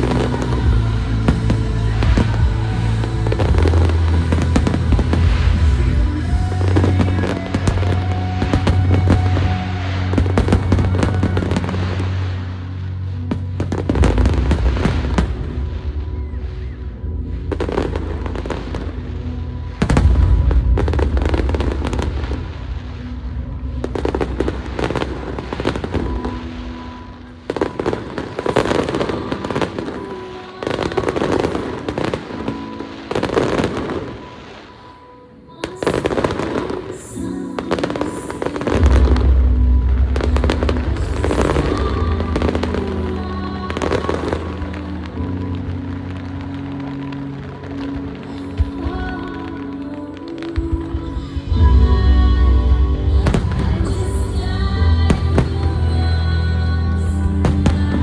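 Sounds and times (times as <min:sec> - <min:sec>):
loud show music with bass: 0:00.0 - 0:25.8
fireworks bursting and crackling: 0:00.0 - 0:49.9, 0:53.0 - 0:58.0.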